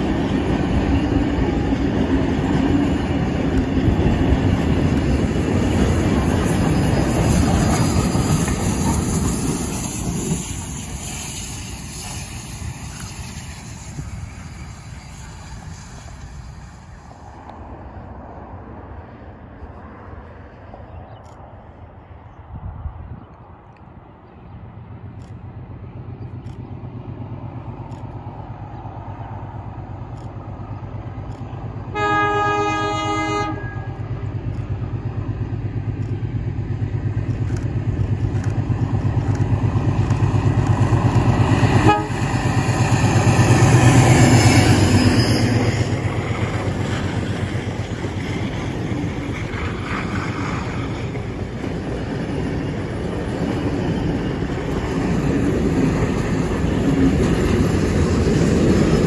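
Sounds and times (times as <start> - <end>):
diesel locomotive engine drone: 0.0 - 59.0
train horn blast: 31.9 - 34.2, 41.7 - 42.4
train wheels clacking over rail joints: 33.9 - 59.0.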